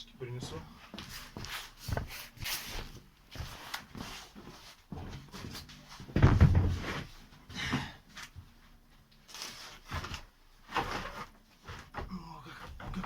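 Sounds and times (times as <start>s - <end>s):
heavy thud: 6.1s - 7.1s.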